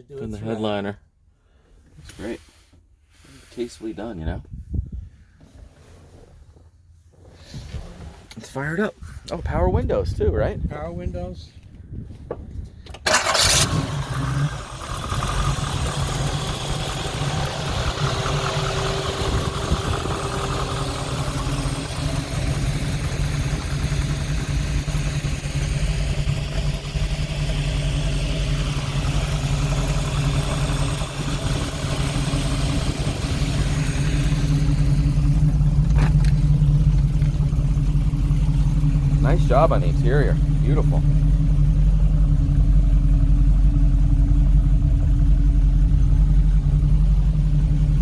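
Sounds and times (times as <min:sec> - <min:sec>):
vee eight engine starting and idling: 0:12.7 - 0:48.0.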